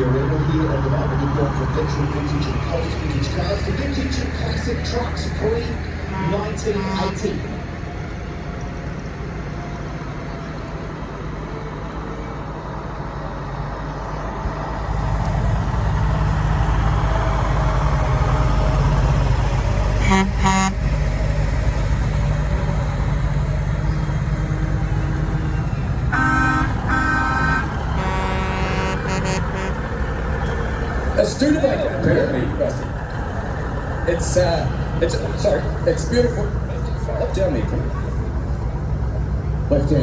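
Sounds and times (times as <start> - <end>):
old truck engines running: 0.0 - 40.0
truck horn blasts: 6.1 - 7.2, 20.0 - 21.0, 26.1 - 29.9.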